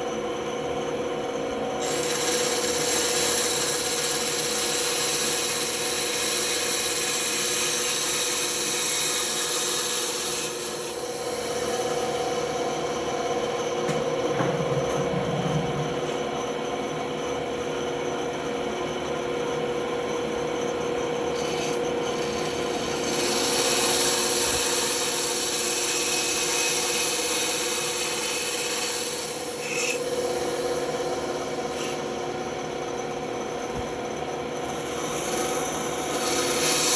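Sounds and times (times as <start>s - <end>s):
band saw cutting: 1.8s - 13.1s, 21.2s - 36.9s.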